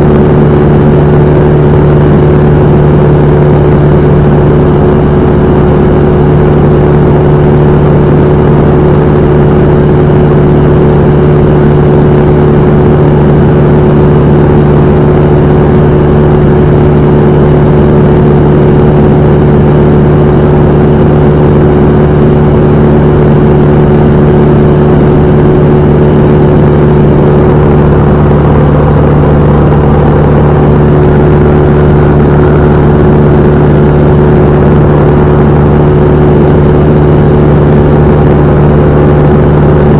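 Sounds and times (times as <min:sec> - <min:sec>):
aircraft engine and propeller droning: 0:00.0 - 0:39.9.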